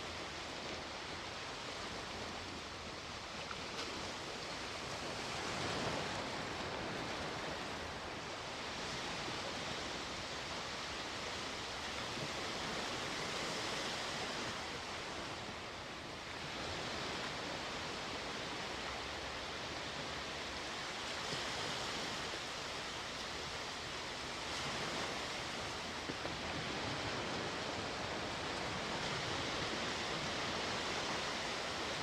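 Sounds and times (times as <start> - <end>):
sea waves washing onto shore: 0.0 - 32.0.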